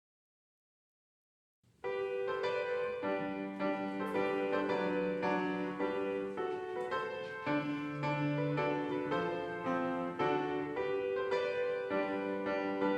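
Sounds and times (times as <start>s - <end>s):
piano playing chords: 1.8s - 12.9s.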